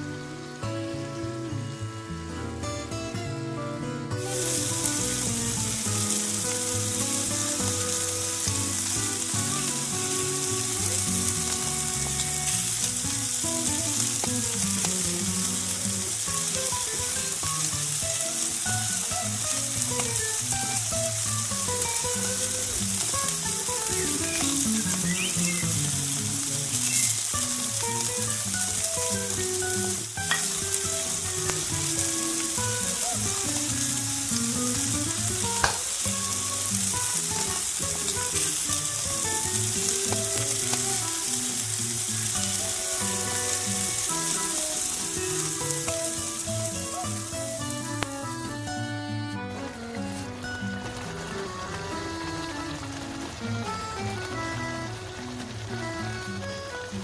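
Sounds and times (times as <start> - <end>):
melody: 0.0 - 57.0
food being stirred in skillet: 4.2 - 48.4
chicken sizzling in oil: 4.2 - 48.7.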